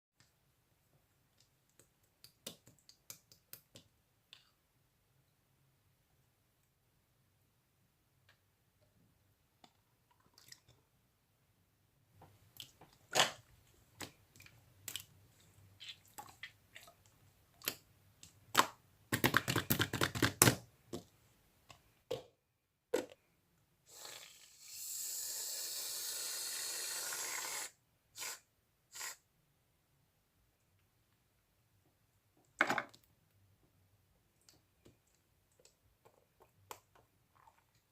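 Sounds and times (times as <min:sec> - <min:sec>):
aerosol can spraying: 0:24.6 - 0:29.2.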